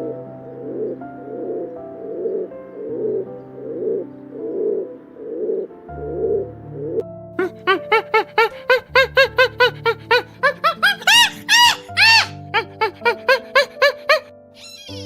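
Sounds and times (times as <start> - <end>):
background music: 0.0 - 15.0
animal squeaky calls: 7.4 - 15.0.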